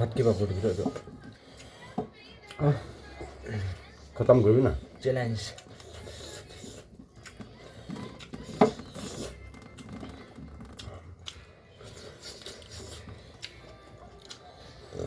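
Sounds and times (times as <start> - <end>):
chewing clicks and crackles: 5.4 - 15.0.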